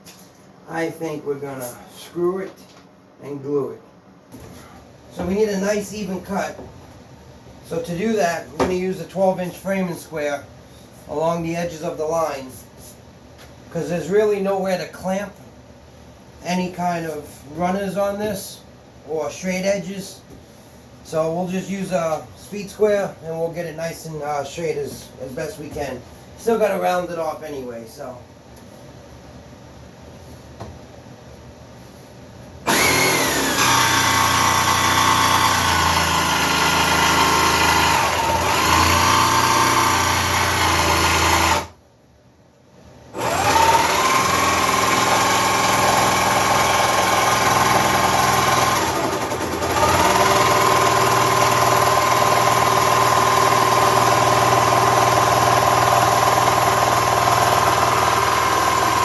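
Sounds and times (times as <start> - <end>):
jigsaw cutting wood: 32.7 - 41.8, 43.2 - 59.0.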